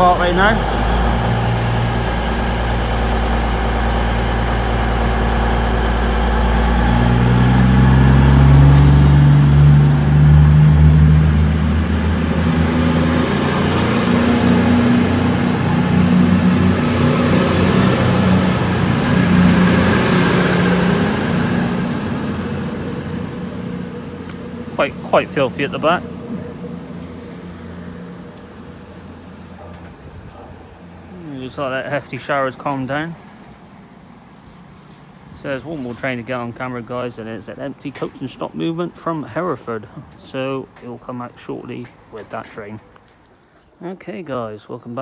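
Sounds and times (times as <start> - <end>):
train diesel engines running: 0.0 - 45.0
faint high whine: 14.3 - 32.0.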